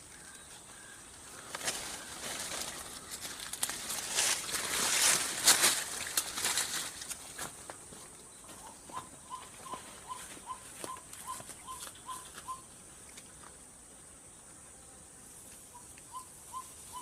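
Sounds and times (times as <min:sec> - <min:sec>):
waterhen calling: 0:08.6 - 0:12.7, 0:15.7 - 0:17.0.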